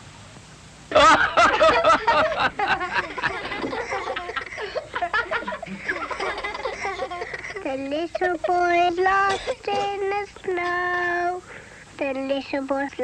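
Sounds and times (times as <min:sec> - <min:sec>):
group laughing and chattering: 0:00.9 - 0:08.7.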